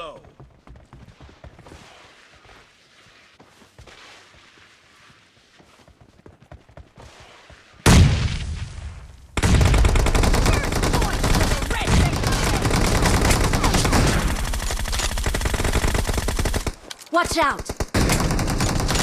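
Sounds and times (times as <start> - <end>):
loud gun blast: 7.9 - 14.4
rapid automatic gunfire: 9.4 - 16.8, 17.6 - 19.0.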